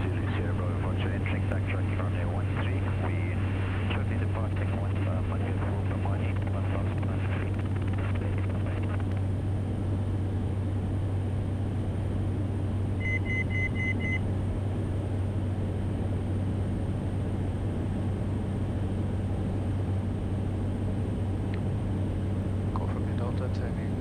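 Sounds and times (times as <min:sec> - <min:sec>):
turboprop engine drone: 0:00.0 - 0:24.0
short beeps: 0:13.0 - 0:14.2.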